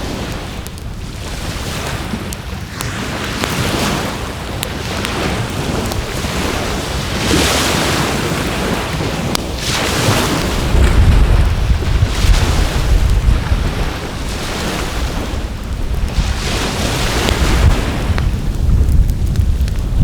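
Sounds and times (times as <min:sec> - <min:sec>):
waves washing onto shore: 0:00.0 - 0:20.0
wind rumbling on microphone: 0:00.0 - 0:20.0
wood fire crackling and popping: 0:00.0 - 0:20.0.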